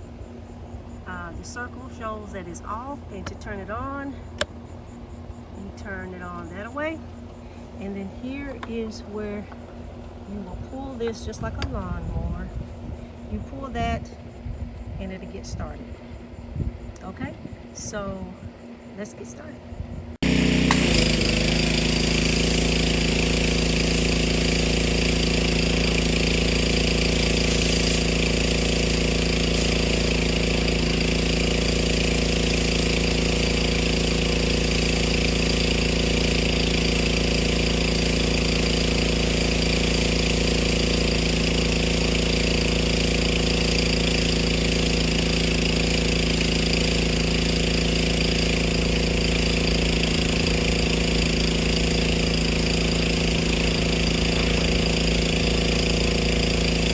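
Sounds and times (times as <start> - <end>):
pressure washer engine running: 1.1 - 4.4, 20.2 - 56.9.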